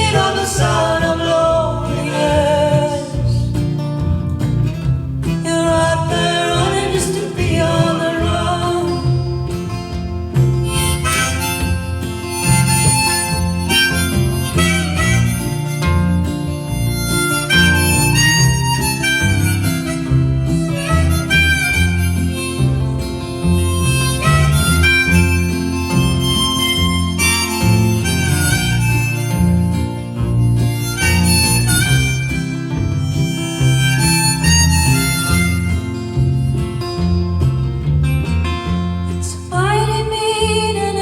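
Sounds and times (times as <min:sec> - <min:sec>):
acoustic guitar accompaniment: 0:00.0 - 0:41.0
harmonica solo: 0:07.9 - 0:38.6.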